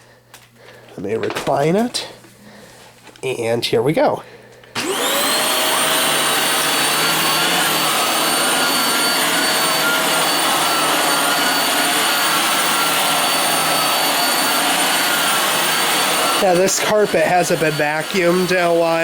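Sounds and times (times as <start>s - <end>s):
vacuum cleaner running: 4.8s - 19.0s.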